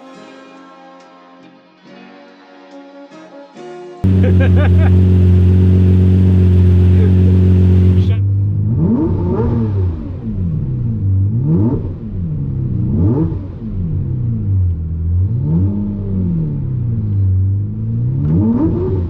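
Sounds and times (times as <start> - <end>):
car engine revving: 4.0 - 10.3.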